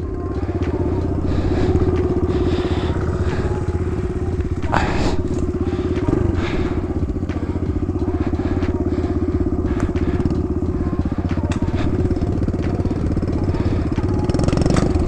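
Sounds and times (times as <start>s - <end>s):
dirt bike engine idling: 0.0s - 15.0s.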